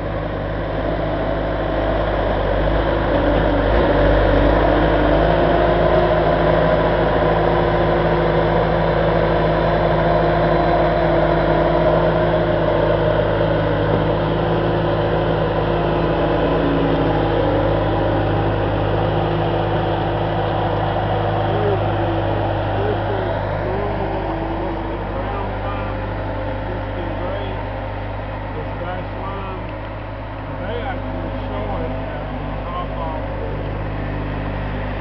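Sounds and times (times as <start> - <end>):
large engine idling: 0.0 - 35.0.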